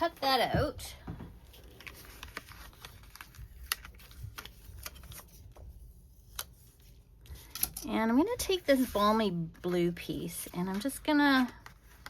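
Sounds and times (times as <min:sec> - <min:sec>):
paper rustling and tapping: 0:00.3 - 0:09.3.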